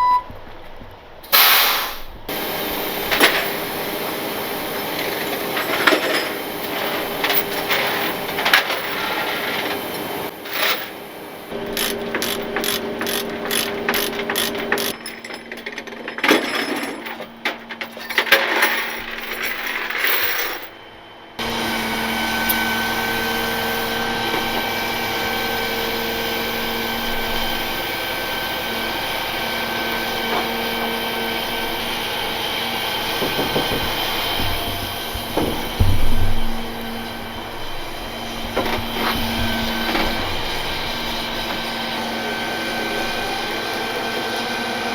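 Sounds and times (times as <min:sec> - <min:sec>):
steady mechanical hum: 0:00.0 - 0:44.9
metallic clicking and clanking: 0:04.9 - 0:20.8.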